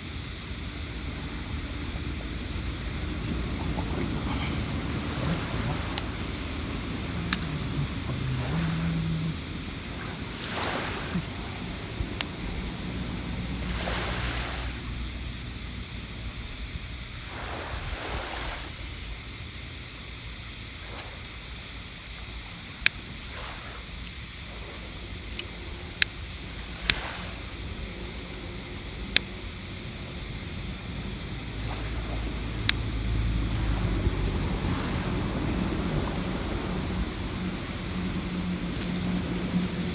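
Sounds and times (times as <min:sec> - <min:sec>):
campfire wood cracking: 0:00.0 - 0:18.2, 0:35.2 - 0:39.9
sea waves washing on shore: 0:00.0 - 0:39.9.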